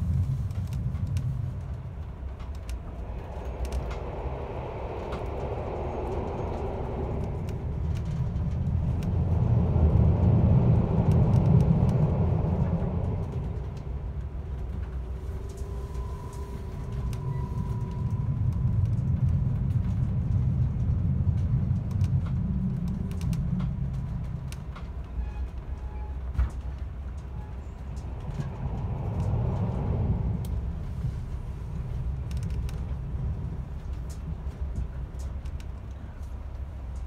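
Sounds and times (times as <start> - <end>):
train wheels rumbling on track: 0.0 - 37.0.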